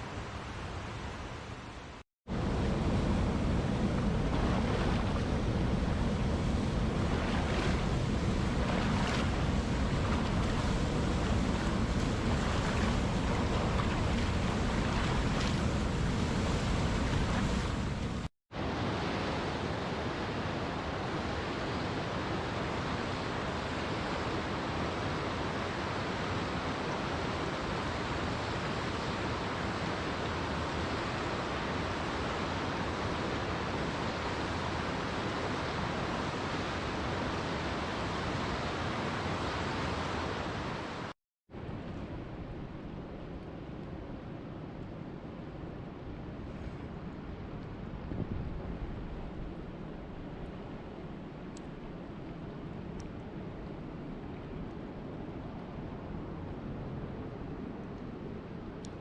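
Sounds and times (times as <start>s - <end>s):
rushing water: 0.0s - 43.6s.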